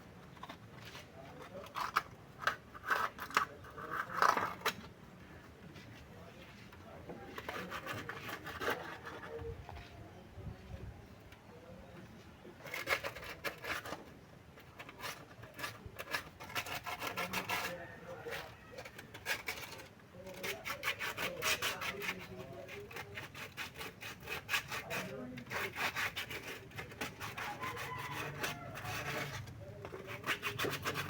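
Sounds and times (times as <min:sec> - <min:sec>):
hand scraping strokes: 0:05.6 - 0:10.6, 0:12.5 - 0:31.0.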